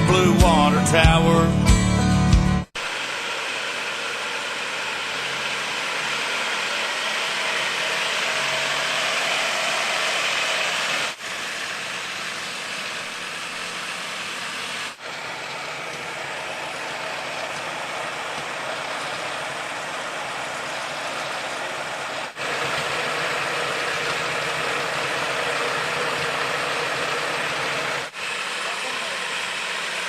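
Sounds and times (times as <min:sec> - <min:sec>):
engine idling: 0:00.0 - 0:30.0.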